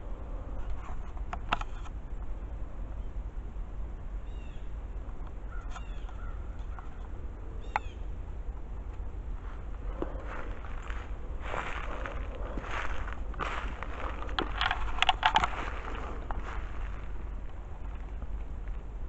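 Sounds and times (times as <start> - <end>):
steady low rumble: 0.0 - 19.0
bird calling: 4.2 - 4.8, 5.4 - 8.1, 9.6 - 18.4.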